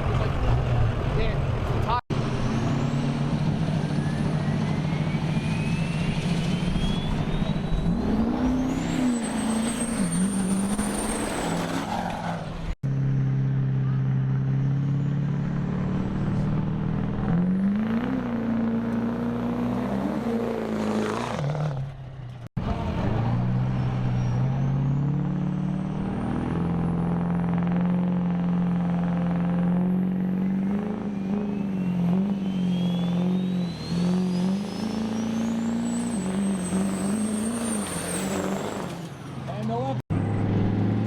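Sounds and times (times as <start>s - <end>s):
diesel truck engine running: 0.0s - 11.5s
turbo whistle rising in pitch: 2.6s - 11.6s, 31.0s - 38.8s.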